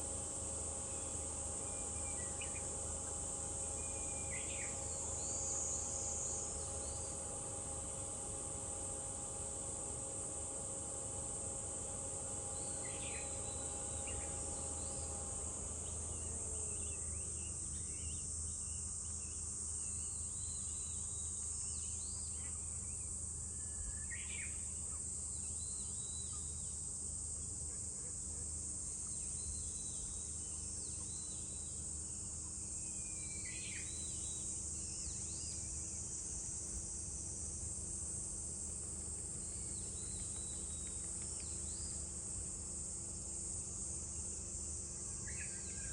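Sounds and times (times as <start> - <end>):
cicadas droning: 0.0 - 45.9.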